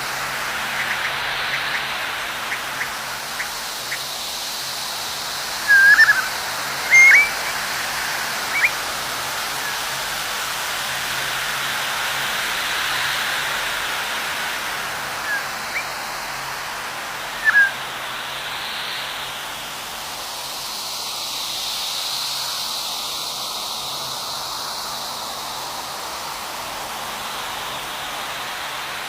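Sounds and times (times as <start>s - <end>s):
birds chirping: 0.0s - 10.0s, 15.0s - 16.2s, 17.3s - 17.8s
rushing hiss of background noise: 0.0s - 29.0s.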